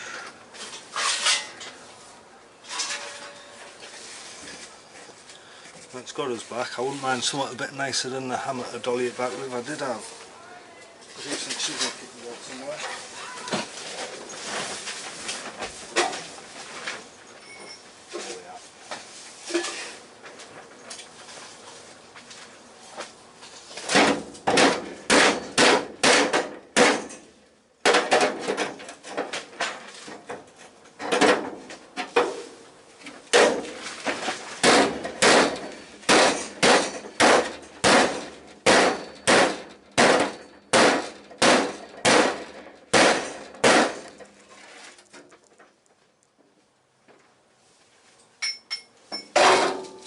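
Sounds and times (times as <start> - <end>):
hammer striking steel panel: 34.6 - 44.1.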